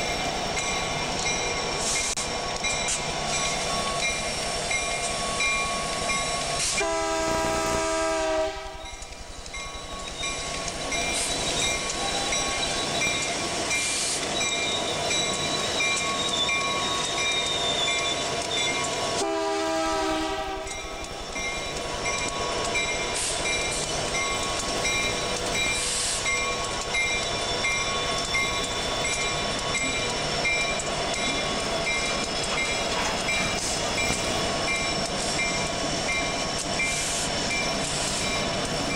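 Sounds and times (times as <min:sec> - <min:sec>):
freight train rolling by: 0:00.0 - 0:38.9
train horn blasts: 0:06.6 - 0:09.0, 0:19.2 - 0:20.8.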